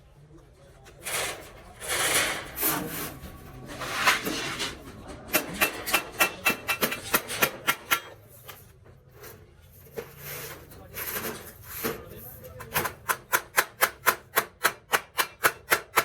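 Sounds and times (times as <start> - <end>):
metal scraping: 0.9 - 13.2.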